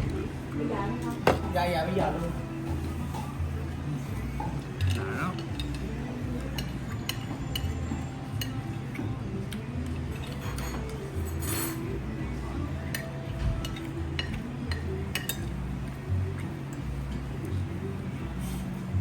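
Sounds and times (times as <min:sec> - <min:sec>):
background music with low beat: 0:00.0 - 0:19.0
cutlery clinking against dishes: 0:04.2 - 0:12.0, 0:12.8 - 0:15.6.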